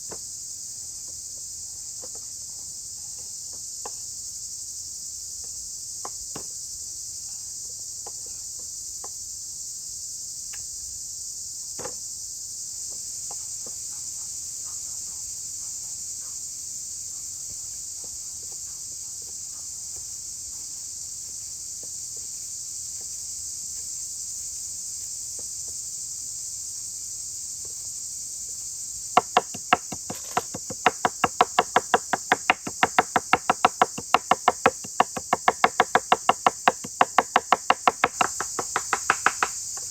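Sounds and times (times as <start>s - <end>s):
crickets chirring: 0.0s - 39.9s
fast sharp knocks: 29.2s - 39.9s.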